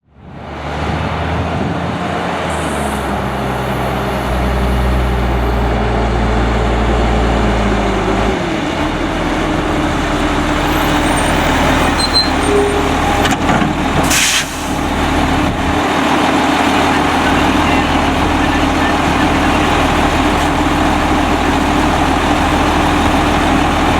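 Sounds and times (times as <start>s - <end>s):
garbage truck diesel engine: 0.0s - 23.9s
air hiss: 14.0s - 14.8s.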